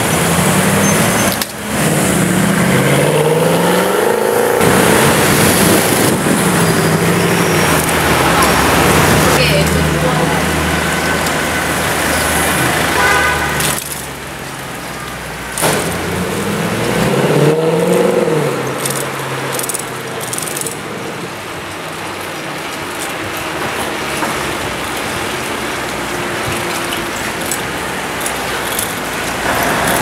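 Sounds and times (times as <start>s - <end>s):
car exhaust accelerating hard: 0.0s - 14.3s
street traffic: 0.0s - 30.0s.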